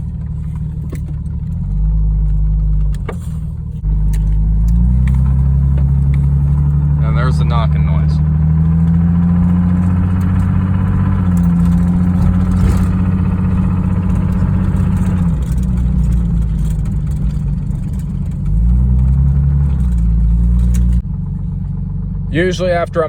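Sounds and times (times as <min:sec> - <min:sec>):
car engine running: 0:00.0 - 0:23.0
engine knocking: 0:05.4 - 0:23.0.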